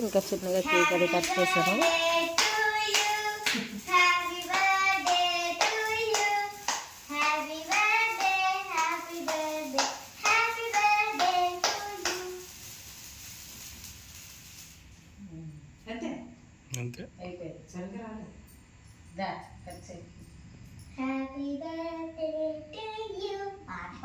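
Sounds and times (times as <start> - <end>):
hand clapping: 0.7 - 12.3.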